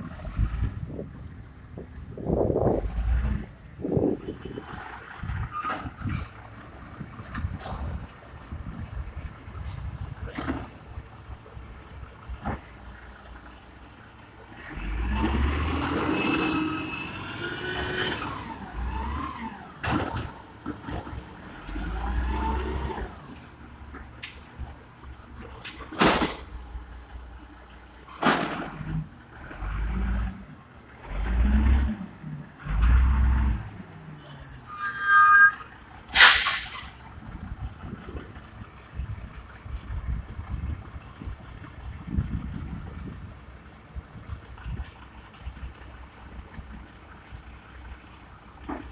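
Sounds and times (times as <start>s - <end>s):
high squeal: 3.9s - 6.3s, 34.0s - 36.9s
garbage truck diesel engine revving: 12.0s - 23.3s, 28.2s - 34.0s.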